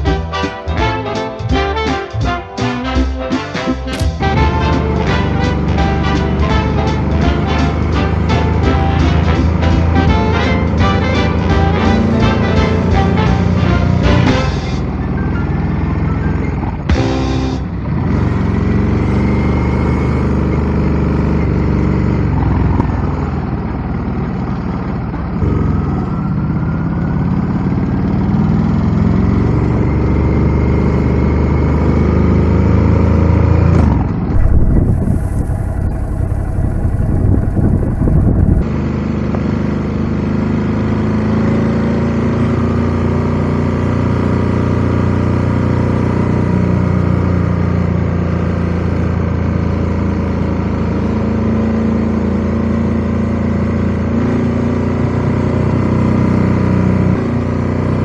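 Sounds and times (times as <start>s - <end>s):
motorcycle engine accelerating: 3.9s - 17.2s, 17.8s - 58.0s
heavy wind rush: 34.4s - 38.6s.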